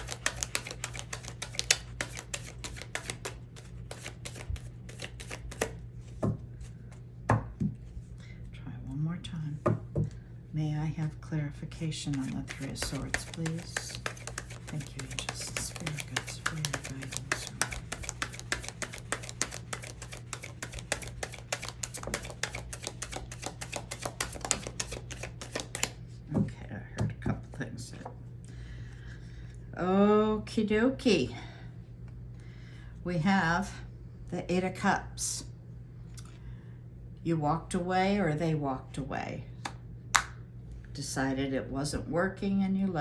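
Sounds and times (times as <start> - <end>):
cards being shuffled: 0.0 - 6.3, 12.0 - 26.0
low steady hum: 0.0 - 43.0.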